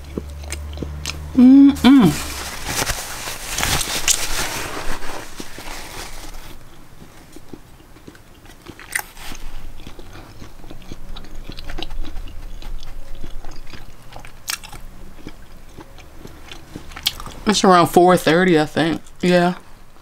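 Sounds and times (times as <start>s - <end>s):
person chewing with wet clicks: 0.0s - 1.4s, 6.6s - 17.7s
crisp crunches: 1.8s - 12.8s.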